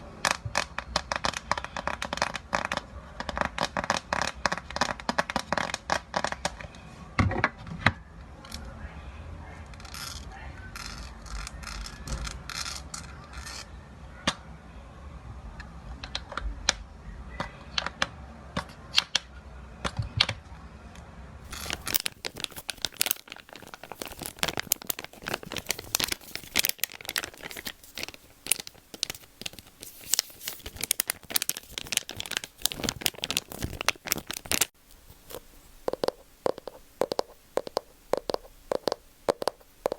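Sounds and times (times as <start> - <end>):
small crackling clicks and taps: 21.5 - 39.9.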